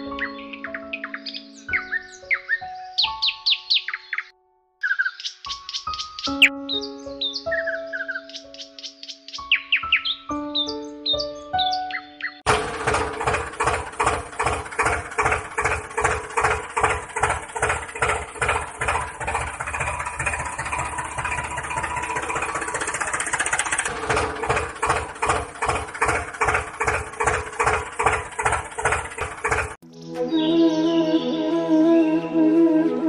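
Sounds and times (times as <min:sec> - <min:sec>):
tractor engine chugging at idle: 0:12.5 - 0:29.8.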